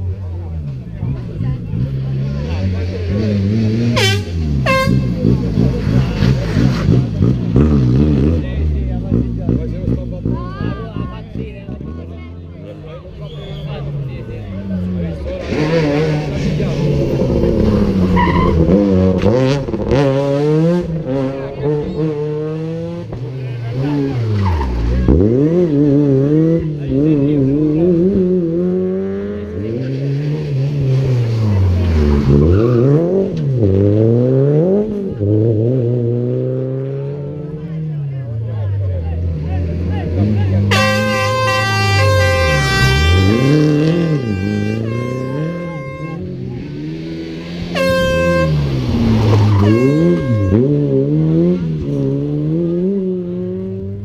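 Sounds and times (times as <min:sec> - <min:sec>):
rally car engine revving: 0:00.0 - 0:54.0
air horn blowing: 0:04.0 - 0:05.3, 0:40.7 - 0:46.5, 0:47.6 - 0:51.0.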